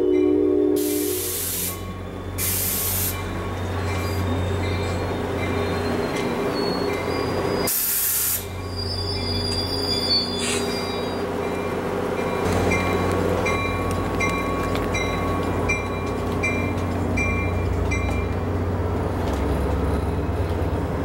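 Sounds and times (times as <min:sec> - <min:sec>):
train wheels rumbling: 0:00.0 - 0:21.0
high wheel squeals: 0:00.9 - 0:11.3
short hissing bursts: 0:07.7 - 0:08.5.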